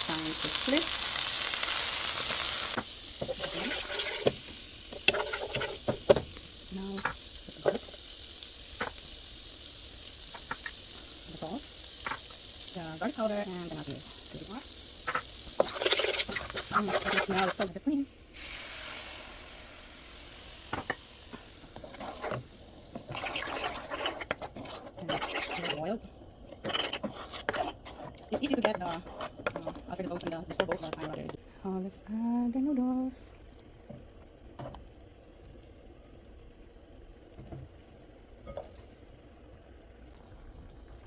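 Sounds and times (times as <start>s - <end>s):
faint bubbling hiss: 0.0s - 41.0s
cream sauce simmering in a pan: 18.3s - 29.8s.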